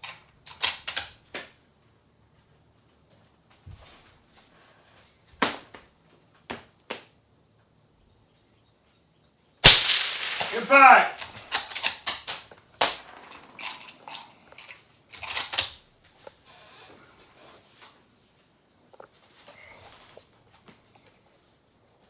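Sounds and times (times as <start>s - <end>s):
suppressed rifle shot: 9.6s - 11.8s.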